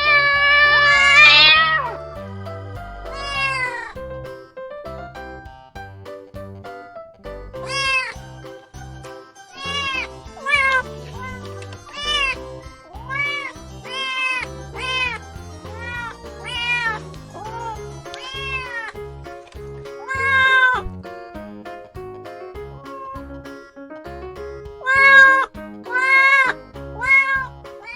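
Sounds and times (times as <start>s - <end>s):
cats meowing: 0.0s - 4.0s, 9.6s - 15.2s, 15.8s - 19.0s, 22.6s - 23.5s
background music: 0.0s - 27.9s.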